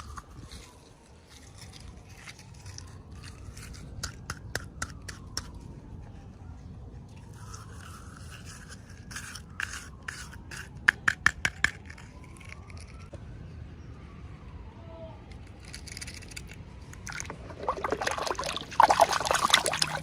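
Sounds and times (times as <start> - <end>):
plastic packaging scraping and clicking: 7.1 - 13.2.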